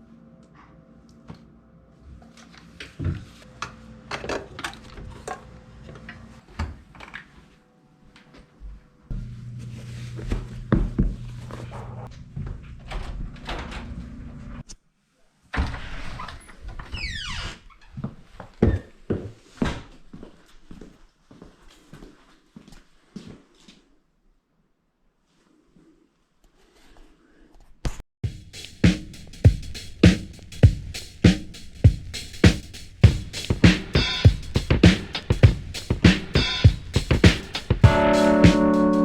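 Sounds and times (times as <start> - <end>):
low motor hum: 9.1 - 12.8.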